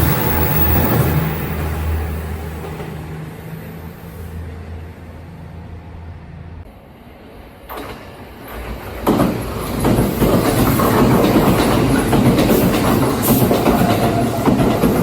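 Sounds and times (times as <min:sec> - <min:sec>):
electric train passing: 0:00.0 - 0:15.0
train wheels clacking over rail joints: 0:07.7 - 0:15.0.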